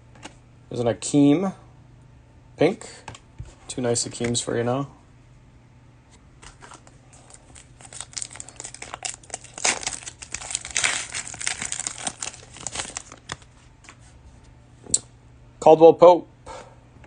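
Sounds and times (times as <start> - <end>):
cellophane wrapper crinkling: 6.4 - 14.1.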